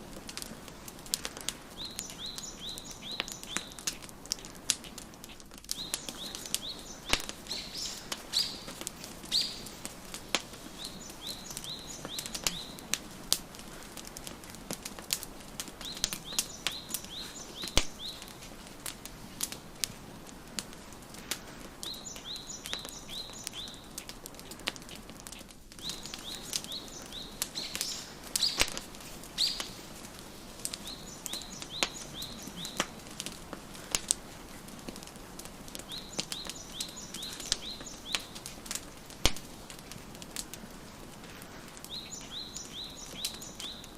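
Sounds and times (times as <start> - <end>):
wood fire crackling and popping: 0.0 - 43.9
bird chirping: 1.7 - 3.9, 5.7 - 12.9, 15.8 - 18.4, 21.8 - 24.0, 25.8 - 29.9, 30.6 - 33.2, 35.8 - 38.4, 41.9 - 43.9.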